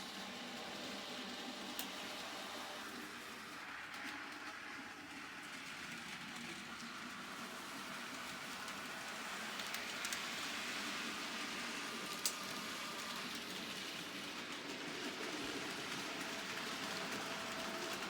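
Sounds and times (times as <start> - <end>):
model train wheels on rail: 0.0 - 18.0.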